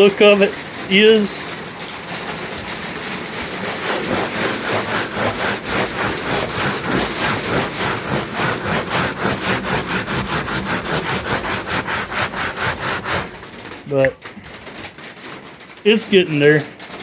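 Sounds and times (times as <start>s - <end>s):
sandpaper scrubbing painted metal: 3.4s - 13.5s.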